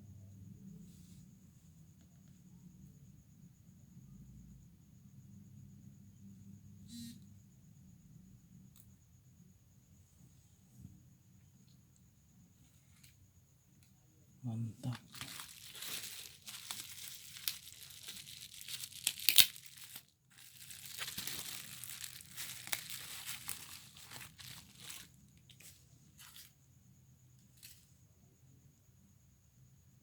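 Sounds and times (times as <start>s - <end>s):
packaging tearing and crinkling: 14.9s - 25.2s.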